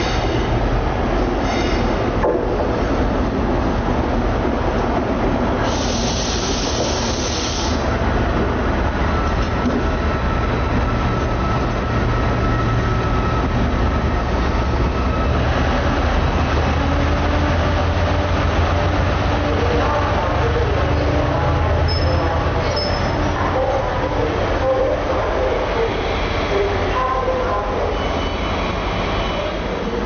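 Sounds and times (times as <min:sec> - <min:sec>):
train low rumble: 0:00.0 - 0:30.0
loud hiss: 0:05.6 - 0:07.9.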